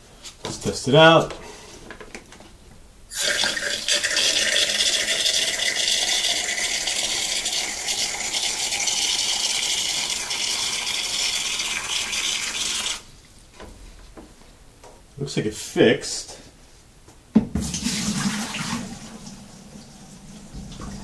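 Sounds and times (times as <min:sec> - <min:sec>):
water running hard from valve: 0:03.1 - 0:13.0.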